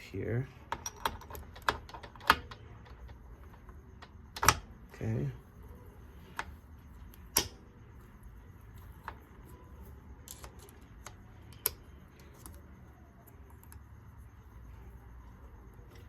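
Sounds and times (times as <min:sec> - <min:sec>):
faint low hum: 0:00.0 - 0:16.0
small metal parts clicking: 0:00.7 - 0:04.6, 0:08.8 - 0:14.3.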